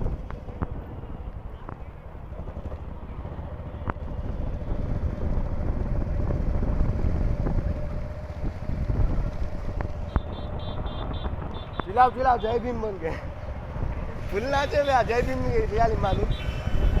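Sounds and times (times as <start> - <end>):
wind rumbling on microphone: 0.0 - 17.0
motorcycle engine running: 2.2 - 15.8.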